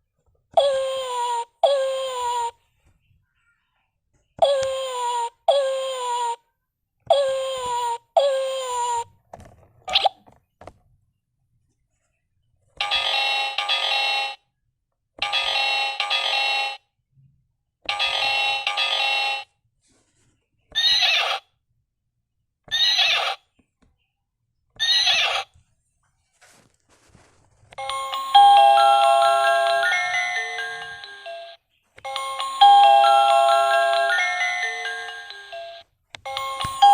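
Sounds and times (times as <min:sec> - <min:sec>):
toy speaker animal sound: 0:00.5 - 0:02.6, 0:04.4 - 0:06.4, 0:07.0 - 0:09.1, 0:09.9 - 0:10.2, 0:20.7 - 0:21.6, 0:22.7 - 0:23.5, 0:24.8 - 0:25.6, 0:27.8 - 0:36.9.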